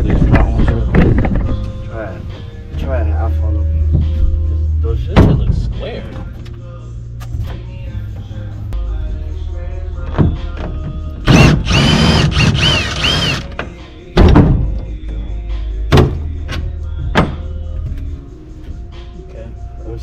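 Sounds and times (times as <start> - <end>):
metal clanks and thunks: 0.0 - 1.8, 5.0 - 6.5, 13.5 - 15.1, 15.9 - 18.0
background music: 0.0 - 20.0
power tool whining on bolts: 11.3 - 13.5.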